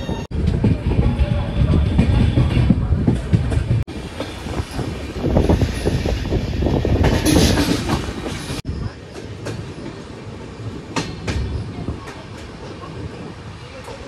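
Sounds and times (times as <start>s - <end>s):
train rumble: 0.0s - 14.0s
train wheels clattering over rail joints: 0.4s - 10.0s.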